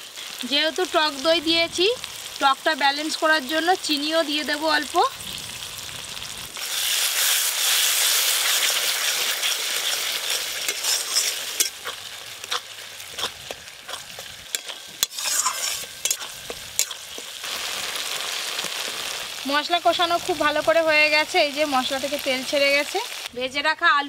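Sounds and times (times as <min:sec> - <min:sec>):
masala sizzling in a pan: 0:00.0 - 0:23.6
metal spatula scraping a pan: 0:08.4 - 0:17.4.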